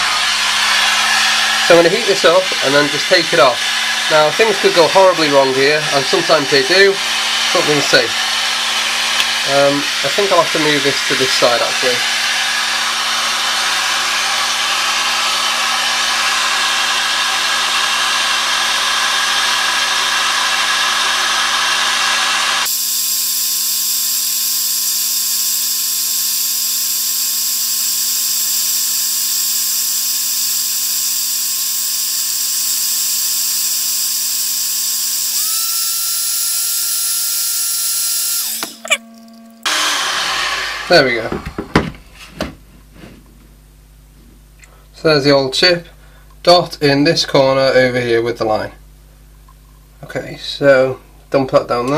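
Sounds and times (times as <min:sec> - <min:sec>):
heat gun blowing air: 0:00.0 - 0:41.8
thin whine rising in pitch: 0:35.1 - 0:41.0.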